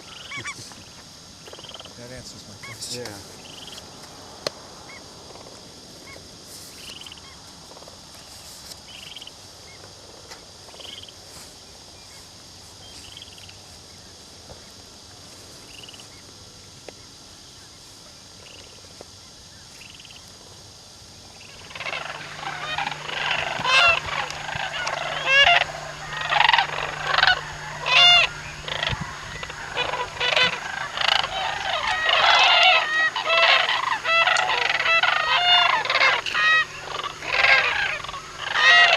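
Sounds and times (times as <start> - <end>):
geese honking: 21.4 - 38.9.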